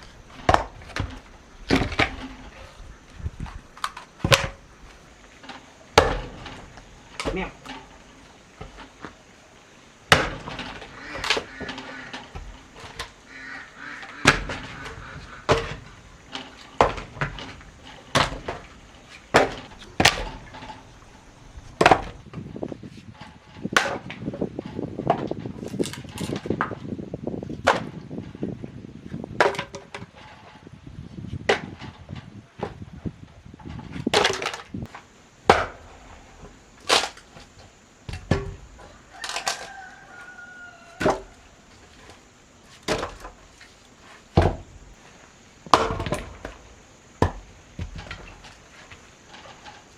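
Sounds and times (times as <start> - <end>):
axe chopping wood: 0.4 - 2.2, 6.0 - 6.4, 10.1 - 10.5, 21.8 - 22.2, 35.5 - 35.9, 45.7 - 46.6.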